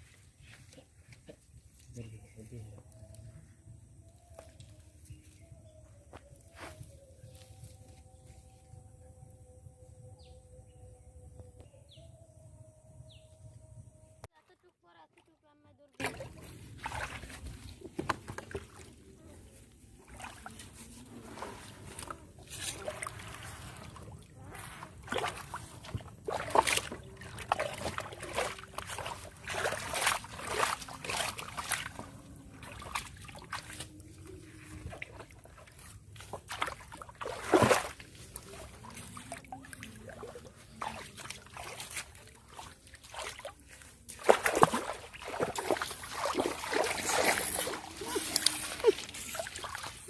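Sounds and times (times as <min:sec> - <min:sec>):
splashing in shallow water: 0:15.9 - 0:50.0.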